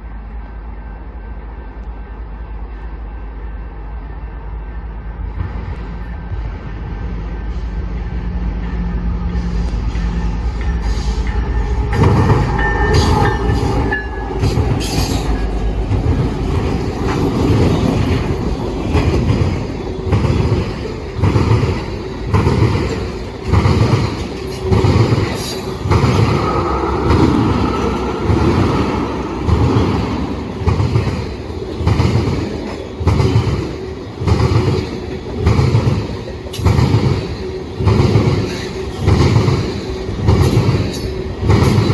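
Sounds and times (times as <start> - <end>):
steel wheel squeal: 9.3 - 15.7.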